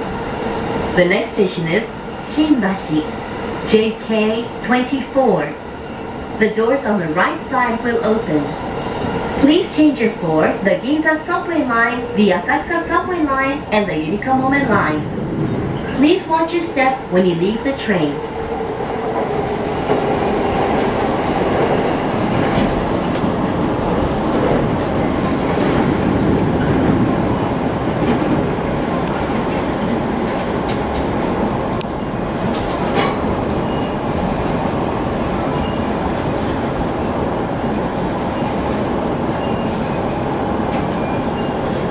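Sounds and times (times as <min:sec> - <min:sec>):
train wheels rumbling on rail: 0:00.0 - 0:41.9
faint high wheel squeals: 0:33.6 - 0:35.9, 0:37.0 - 0:41.8.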